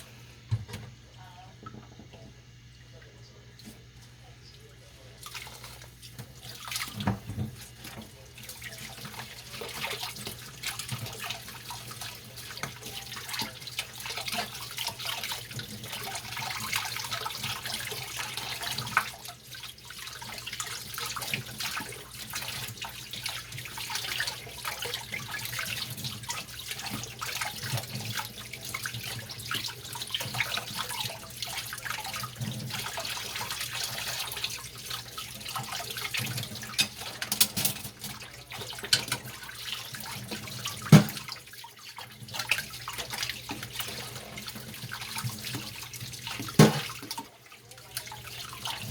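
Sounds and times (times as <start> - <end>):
tap water running into sink: 0.0 - 1.0, 4.9 - 48.9
dishes knocking and clinking: 40.9 - 41.3, 46.6 - 47.0.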